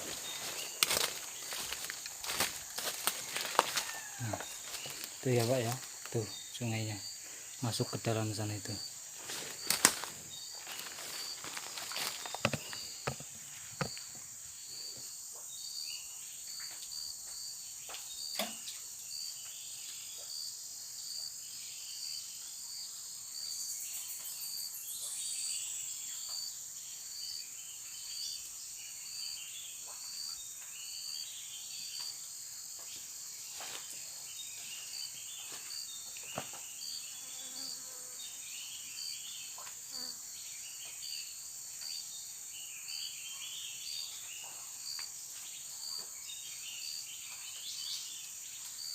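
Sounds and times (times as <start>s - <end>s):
pulsing insect call: 0.0s - 14.9s
crickets and cicadas buzzing: 0.0s - 48.9s
insect chirps: 0.0s - 48.9s.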